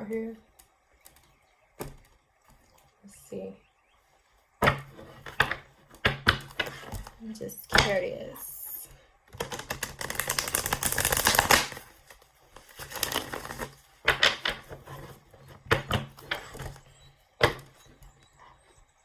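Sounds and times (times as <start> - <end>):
cards slapping and tapping: 4.6 - 7.2, 9.3 - 17.9
cards being shuffled: 6.2 - 7.2, 9.4 - 17.7.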